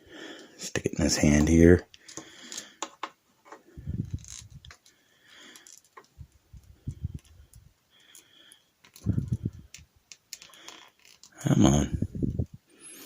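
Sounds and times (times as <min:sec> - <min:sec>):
small plastic clicks: 0:04.1 - 0:11.4.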